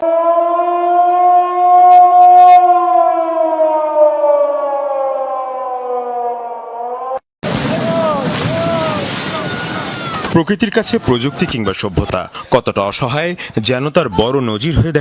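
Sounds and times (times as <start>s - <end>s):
siren wailing: 0.0s - 10.2s.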